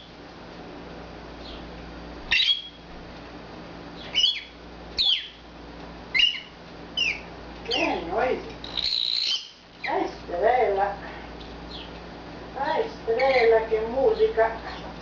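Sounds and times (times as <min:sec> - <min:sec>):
bird chirping shrilly: 0:02.3 - 0:02.8, 0:04.0 - 0:05.4, 0:06.1 - 0:08.0, 0:08.6 - 0:09.6.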